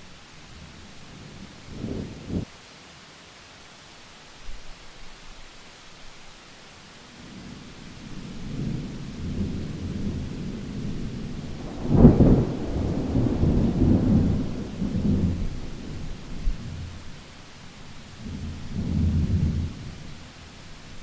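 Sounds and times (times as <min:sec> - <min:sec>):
steady rain: 0:00.0 - 0:21.0
thunder rumbling: 0:07.5 - 0:17.3.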